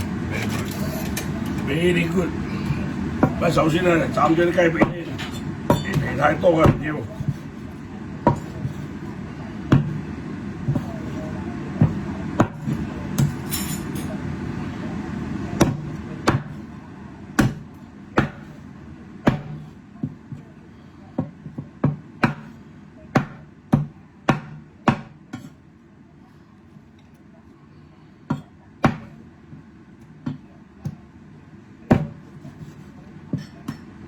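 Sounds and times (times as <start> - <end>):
cleaver chopping meat: 2.6 - 7.6, 8.2 - 13.4, 15.5 - 16.7, 17.4 - 18.6, 19.2 - 20.4, 21.2 - 25.4, 28.3 - 29.2, 31.9 - 33.5.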